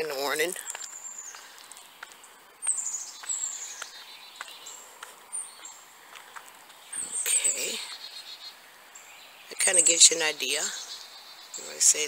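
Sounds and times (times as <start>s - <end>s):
footsteps on gravel: 0.0s - 7.4s
songbirds chirping: 0.0s - 12.0s.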